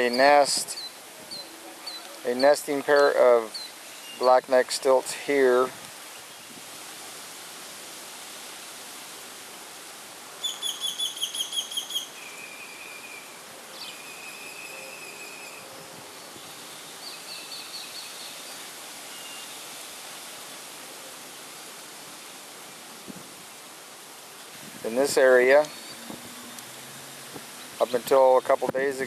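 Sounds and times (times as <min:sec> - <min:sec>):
steady background hiss: 0:00.0 - 0:29.0.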